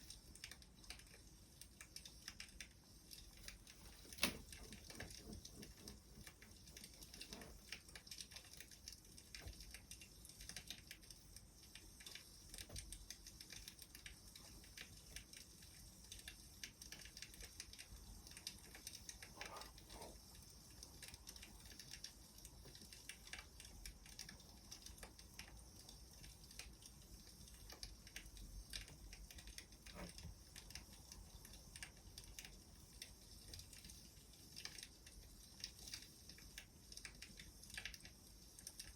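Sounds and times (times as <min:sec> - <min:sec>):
soft steady hiss: 0:00.0 - 0:38.9
wood fire crackling faintly: 0:00.0 - 0:38.9.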